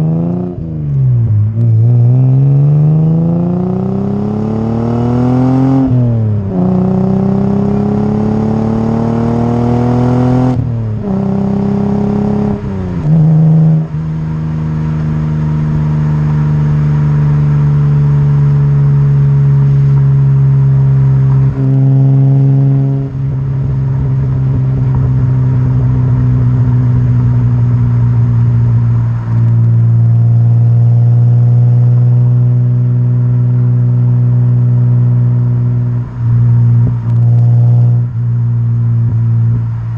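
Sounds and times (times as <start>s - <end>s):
car engine exhaust accelerating: 0.0s - 39.9s.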